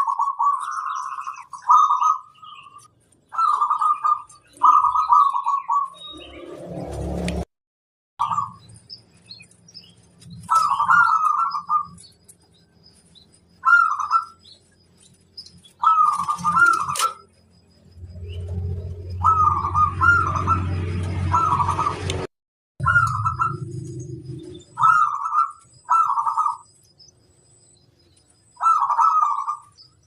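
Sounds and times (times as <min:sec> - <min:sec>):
dove cooing: 0:00.0 - 0:05.9, 0:10.3 - 0:12.1, 0:13.6 - 0:14.6, 0:15.8 - 0:17.3, 0:19.2 - 0:22.1, 0:22.8 - 0:26.6, 0:28.6 - 0:29.8
low hum: 0:17.2 - 0:25.6.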